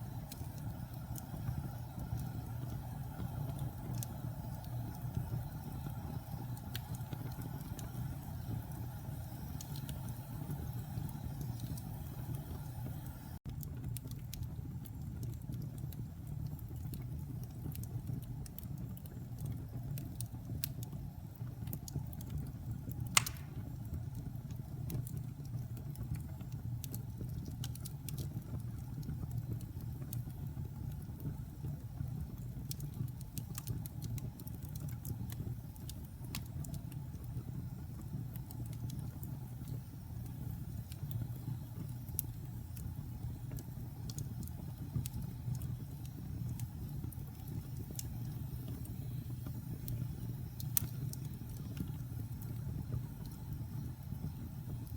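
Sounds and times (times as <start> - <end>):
fire crackling: 0.0 - 54.9
fire flames rumbling: 0.0 - 54.9
sharp pop of fire: 23.1 - 23.9.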